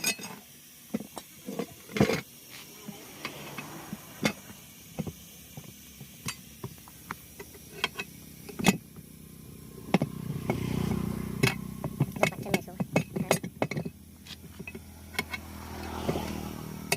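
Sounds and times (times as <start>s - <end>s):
metal tools clinking: 12.2s - 15.5s.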